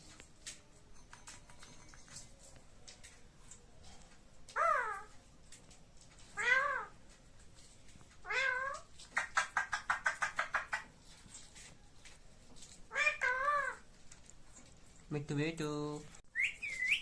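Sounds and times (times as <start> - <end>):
parrot calling: 4.6 - 5.1, 6.4 - 7.0, 8.2 - 10.9, 12.9 - 13.9, 16.3 - 17.0
parrot chattering: 4.6 - 5.1, 8.2 - 10.9, 12.9 - 13.8.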